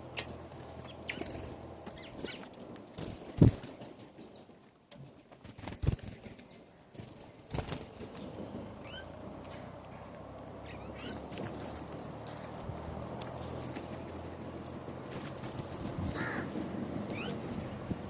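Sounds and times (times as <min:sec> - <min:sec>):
bird chirps: 0:00.0 - 0:02.5, 0:07.9 - 0:13.6, 0:14.5 - 0:14.8, 0:16.8 - 0:17.5.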